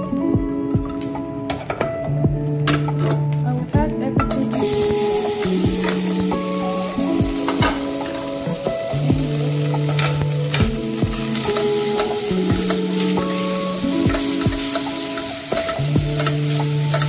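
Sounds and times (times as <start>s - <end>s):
background music with held notes: 0.0s - 17.0s
meat sizzling in a pot: 4.5s - 17.0s.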